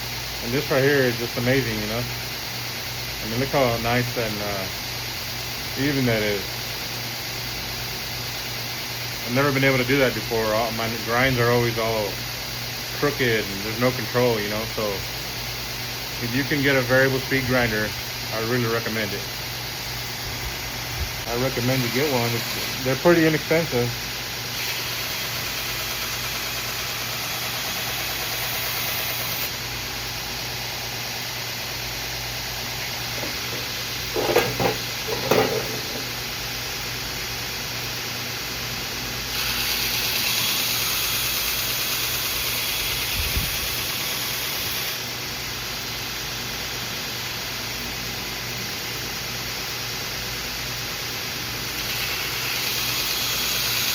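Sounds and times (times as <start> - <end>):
belt grinder motor hum: 21.4 - 29.6, 32.3 - 36.2, 39.3 - 45.0, 51.7 - 53.9
knife blade grinding hiss: 24.5 - 29.5, 39.3 - 45.0, 51.7 - 53.9.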